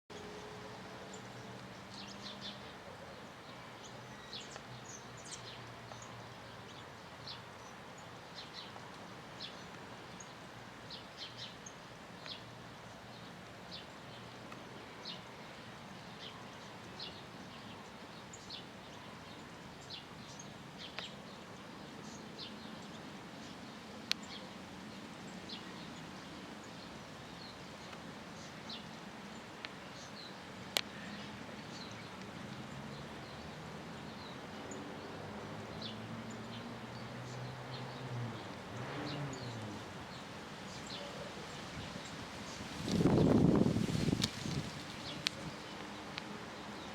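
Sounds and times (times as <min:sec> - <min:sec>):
small birds chirping: 0:01.1 - 0:46.9
outdoor hiss: 0:39.1 - 0:46.9.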